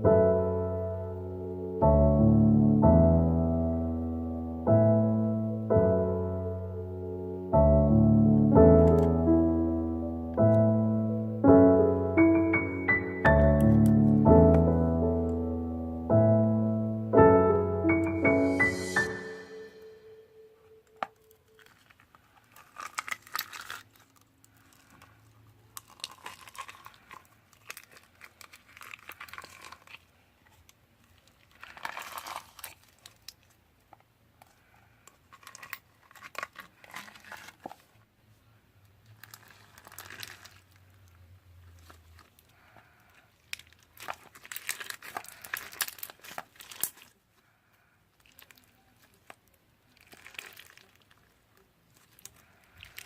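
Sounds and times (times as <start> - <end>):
slime crackling and clicking: 25.8 - 30.0, 48.2 - 51.3.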